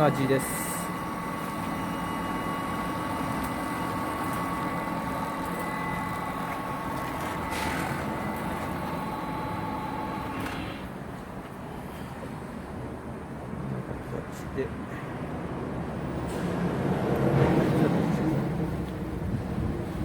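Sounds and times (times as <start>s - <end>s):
machine motor whining: 0.0s - 10.9s
mechanical noise: 0.0s - 11.0s.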